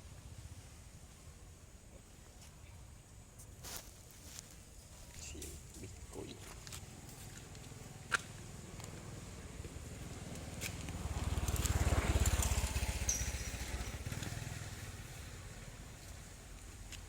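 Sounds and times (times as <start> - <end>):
motorbike passing by: 6.8 - 16.9.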